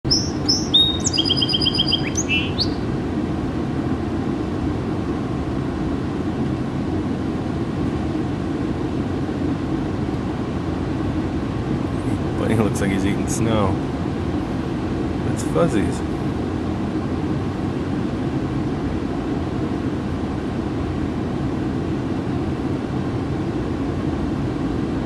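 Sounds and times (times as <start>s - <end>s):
bird song with chirps and trill: 0.0s - 2.9s
low traffic rumble: 0.0s - 25.0s.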